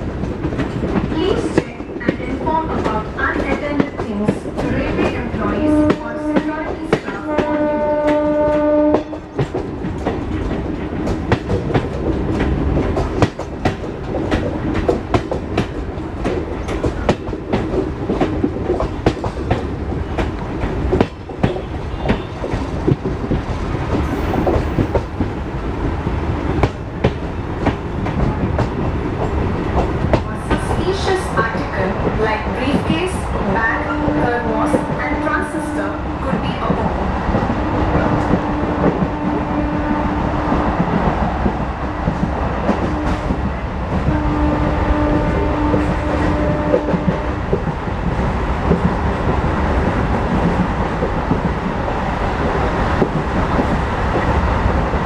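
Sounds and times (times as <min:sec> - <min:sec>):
train rumbling on track: 0:00.0 - 0:55.0
train horn: 0:05.4 - 0:09.2, 0:21.5 - 0:22.5, 0:33.8 - 0:36.0, 0:37.6 - 0:40.6, 0:42.8 - 0:43.4, 0:44.0 - 0:47.4.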